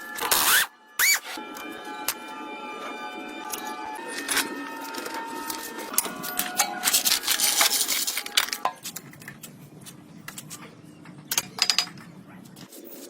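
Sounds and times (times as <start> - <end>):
metal parts and tools clinking: 4.2 - 13.0.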